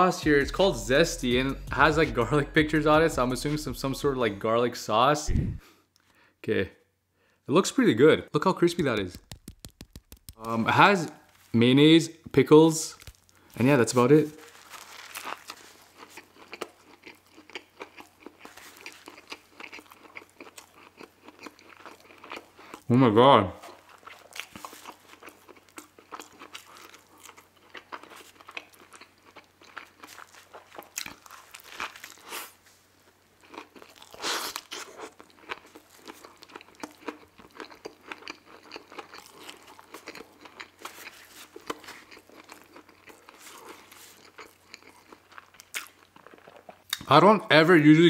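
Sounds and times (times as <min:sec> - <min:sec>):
wet crunching chewing: 0:13.0 - 0:22.9, 0:23.6 - 0:32.6, 0:33.3 - 0:47.1.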